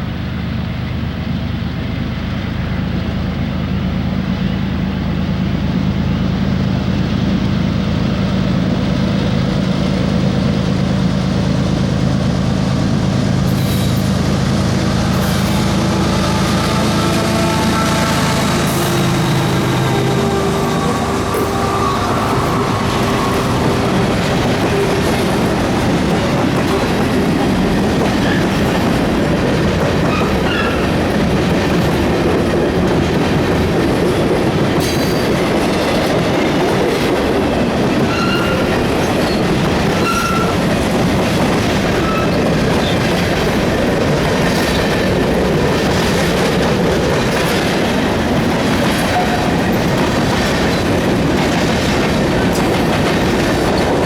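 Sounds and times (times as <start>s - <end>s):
train wheels clattering on rails: 0.0s - 54.0s
high wheel squeals: 13.4s - 27.0s, 38.0s - 40.8s, 41.8s - 43.1s.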